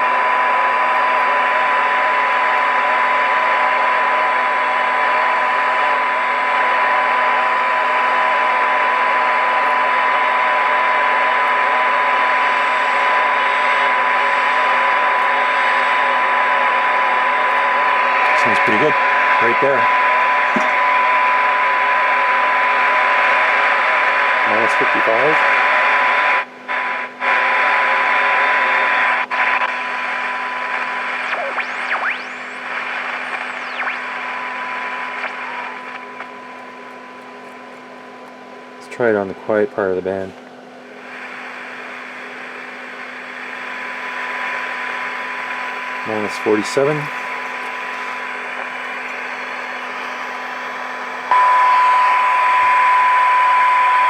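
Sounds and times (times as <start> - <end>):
radio tuning whistles: 0.0 - 37.8, 41.0 - 54.0
radio static hiss: 0.0 - 54.0
steady high test tone: 51.3 - 54.0.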